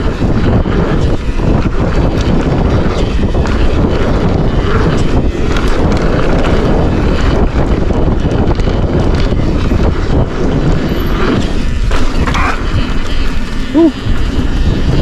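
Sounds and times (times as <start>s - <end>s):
bike knocks and rattles: 0.0s - 15.0s
bike tyre rumble: 0.0s - 15.0s
wind rushing over microphone: 0.0s - 15.0s.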